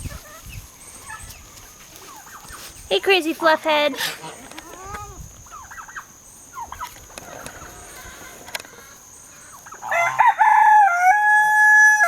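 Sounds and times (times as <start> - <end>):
rooster crowing: 9.7 - 12.0.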